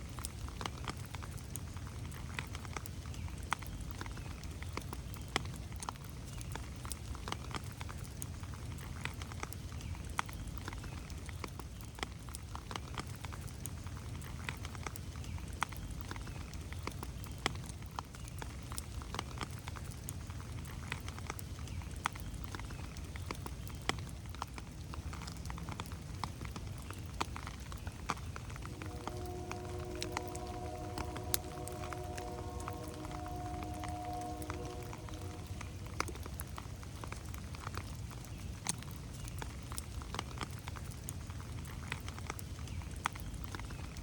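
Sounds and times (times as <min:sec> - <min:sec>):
rain pattering in a forest: 0:00.0 - 0:44.0
low steady rumble: 0:28.2 - 0:37.2
distant train horn: 0:28.4 - 0:37.4.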